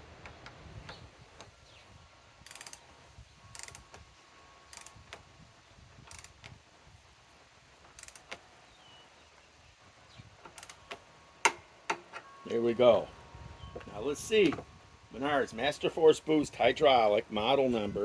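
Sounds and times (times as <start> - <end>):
torque wrench ratchet clicking: 2.4 - 2.8, 3.5 - 4.0, 4.7 - 5.2, 6.0 - 6.6, 7.9 - 8.4, 10.5 - 11.0.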